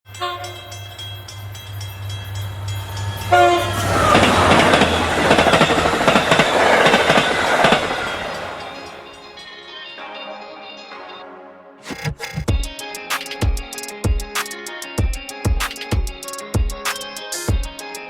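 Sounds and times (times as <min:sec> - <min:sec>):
train horn toots: 0:00.1 - 0:01.5, 0:02.4 - 0:09.2
train passing: 0:00.1 - 0:09.4.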